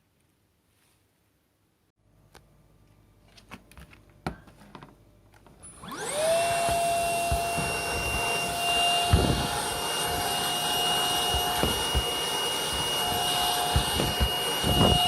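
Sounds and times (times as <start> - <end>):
vacuum motor whine: 5.6 - 15.0.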